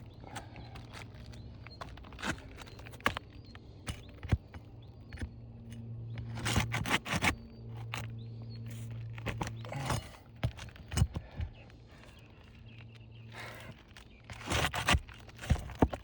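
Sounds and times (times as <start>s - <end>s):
tearing scrapes: 6.2s - 16.0s
metal tool scraping shingles: 8.8s - 11.1s, 13.4s - 16.0s.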